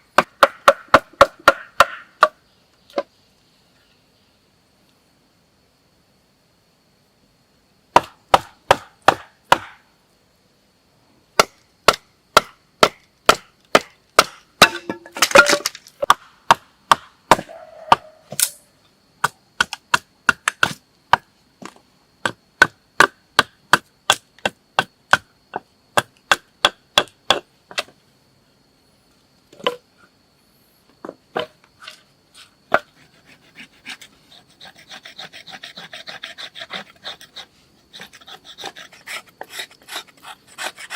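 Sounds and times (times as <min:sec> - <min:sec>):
chopping strikes into wood: 0:00.2 - 0:02.4, 0:08.0 - 0:09.8, 0:11.4 - 0:18.6, 0:19.2 - 0:21.3
rasping scrape: 0:31.8 - 0:40.9.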